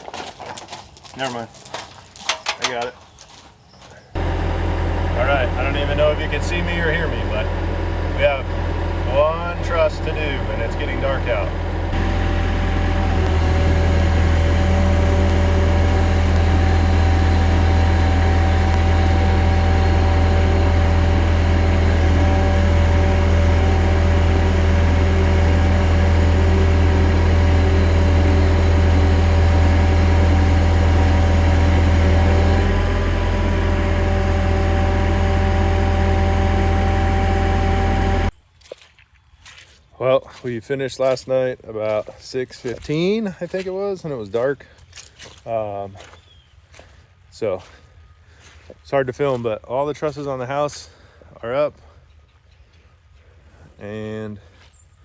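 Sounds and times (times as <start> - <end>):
loud engine running steadily: 2.2 - 3.0, 3.6 - 38.4
steady higher tones: 11.9 - 38.3.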